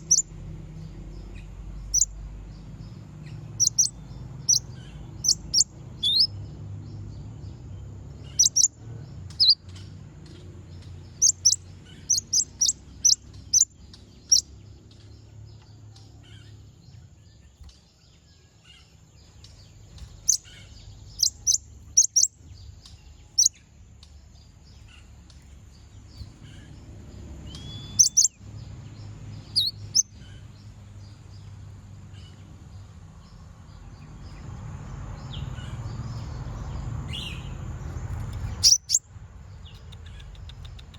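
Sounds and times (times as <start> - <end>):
bird giving high chirps: 0.0 - 0.3, 1.9 - 2.1, 3.6 - 6.3, 8.2 - 8.7, 9.3 - 9.6, 11.2 - 14.5, 20.0 - 22.3, 27.5 - 28.4, 29.4 - 30.2, 38.3 - 39.0.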